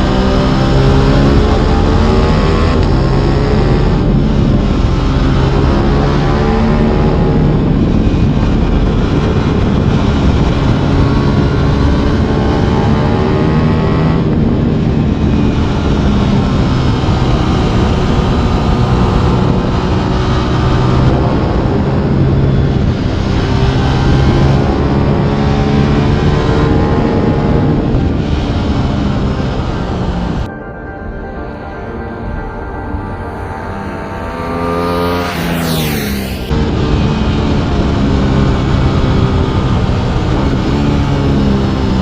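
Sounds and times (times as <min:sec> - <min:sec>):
motorcycle engine shifting gears: 0:00.0 - 0:30.5, 0:33.0 - 0:42.0.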